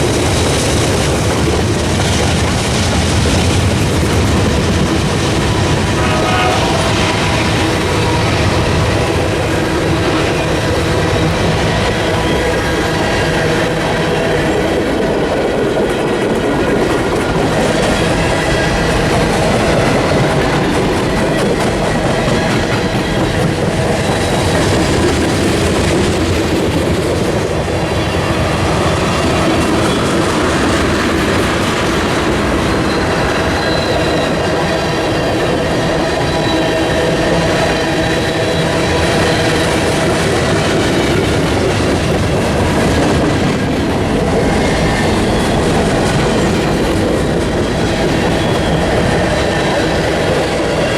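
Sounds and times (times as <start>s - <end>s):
railroad wheels clicking over joints: 0.0s - 50.9s
faint high wheel squeal: 32.7s - 35.2s.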